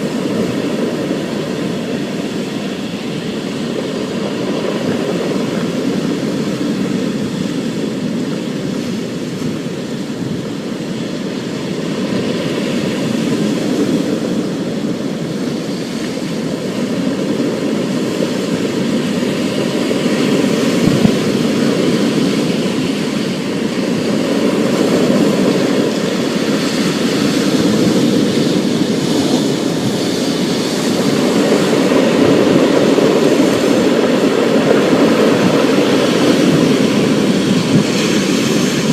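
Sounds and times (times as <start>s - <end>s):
thunder rumbling: 16.9s - 38.9s.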